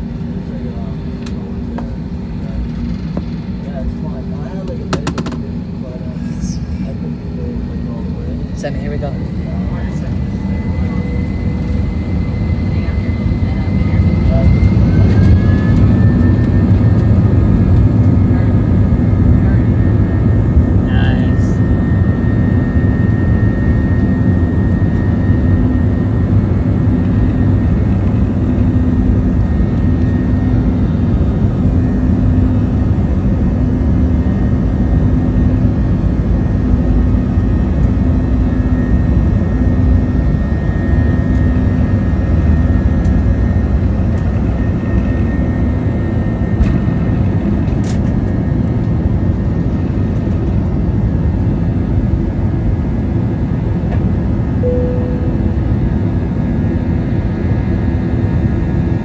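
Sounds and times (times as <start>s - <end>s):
jet engines rumbling in cabin: 0.0s - 59.0s
faint steady whine: 54.6s - 57.5s.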